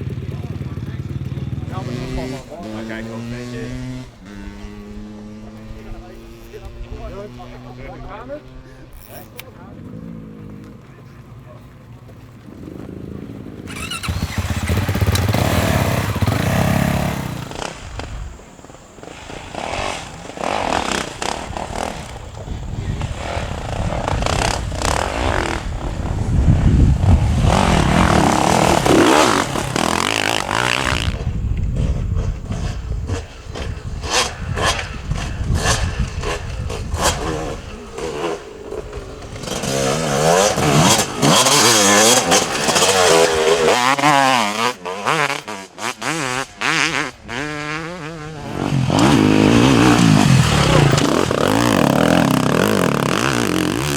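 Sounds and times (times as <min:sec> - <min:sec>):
dirt bike engines revving: 0:00.0 - 0:53.9.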